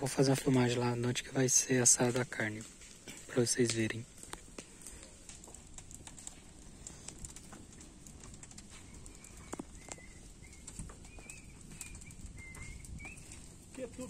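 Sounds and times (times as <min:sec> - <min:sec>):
wood fire crackling: 0:00.0 - 0:14.0
bird chirping: 0:08.7 - 0:13.6.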